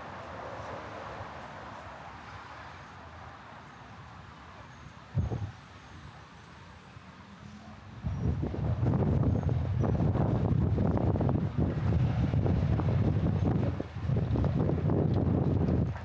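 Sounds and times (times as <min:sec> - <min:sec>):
wind buffeting microphone: 0:05.2 - 0:05.6, 0:08.0 - 0:16.0.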